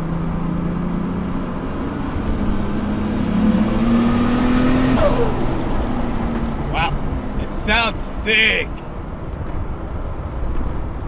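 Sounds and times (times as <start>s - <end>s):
car engine revving from inside cabin: 2.0s - 5.9s.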